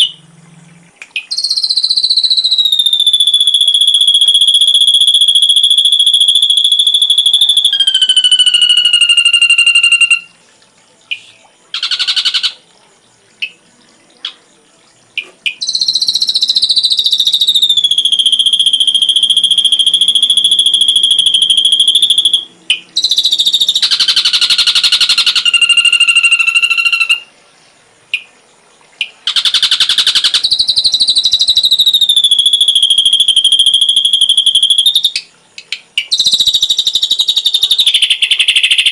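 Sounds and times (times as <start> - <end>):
bird buzzy trills: 0.0 - 10.4, 11.0 - 14.4, 15.1 - 27.3, 29.0 - 38.9
bird high whistles: 1.2 - 10.3, 15.2 - 27.3, 29.0 - 35.3, 36.0 - 38.9.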